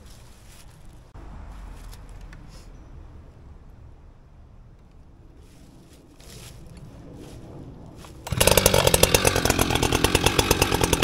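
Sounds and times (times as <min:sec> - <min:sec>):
faint scraping: 0:04.8 - 0:08.4
chainsaw engine running: 0:08.2 - 0:11.0.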